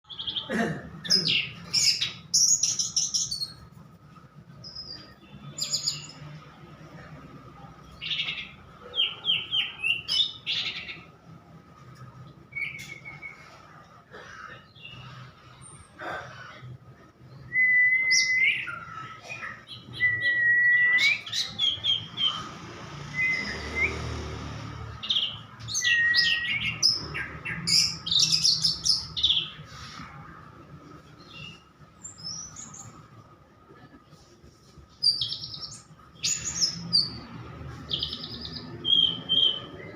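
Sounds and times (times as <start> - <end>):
bird singing chirps and trills: 1.1 - 3.7, 4.5 - 6.4, 7.9 - 11.2, 12.3 - 13.6, 17.2 - 29.7, 35.0 - 39.9.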